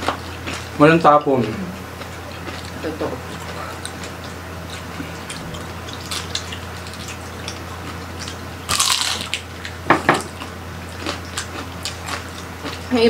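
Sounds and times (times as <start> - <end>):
crunching crispy skin: 2.4 - 9.8.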